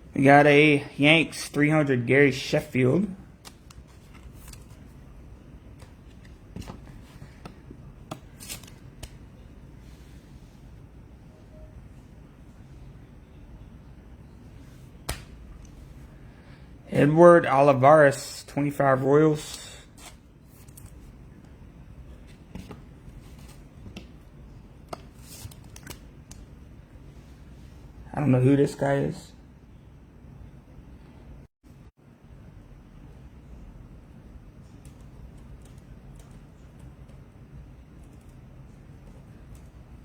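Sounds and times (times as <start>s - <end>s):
low background hum: 0.0s - 40.0s
trading cards clicking and rustling: 3.3s - 5.0s, 5.7s - 9.2s, 24.8s - 26.4s.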